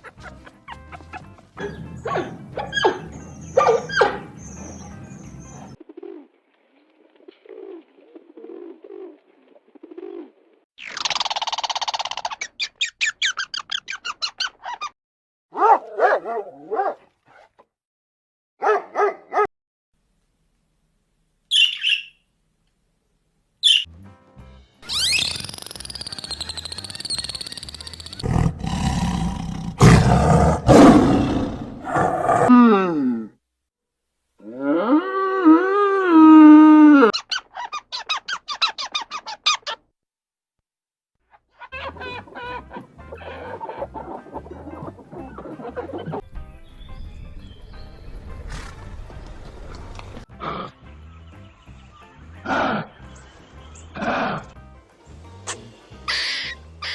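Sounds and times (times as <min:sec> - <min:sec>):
bark-like animal calls: 0:00.0 - 0:06.2, 0:15.6 - 0:17.6, 0:18.6 - 0:19.5, 0:41.3 - 0:46.2, 0:52.4 - 0:53.1
high chirps: 0:21.5 - 0:22.2, 0:23.6 - 0:23.9, 0:24.8 - 0:28.2
short squeaky animal calls: 0:24.8 - 0:28.2, 0:37.2 - 0:39.8, 0:55.5 - 0:56.9
farm animal long cry: 0:34.4 - 0:37.1.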